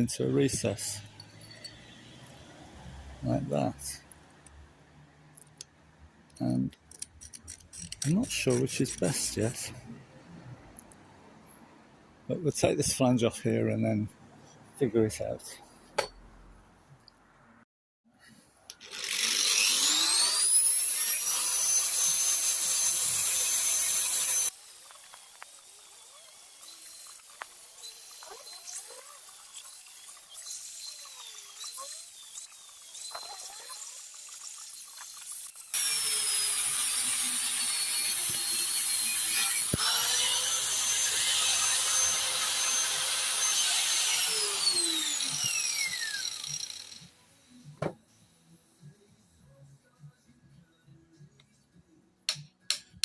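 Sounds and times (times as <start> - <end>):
angle grinder whining: 18.8 - 47.2.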